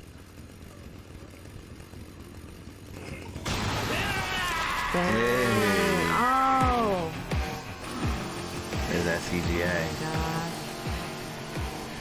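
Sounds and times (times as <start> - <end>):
chainsaw engine revving: 4.8 - 12.0.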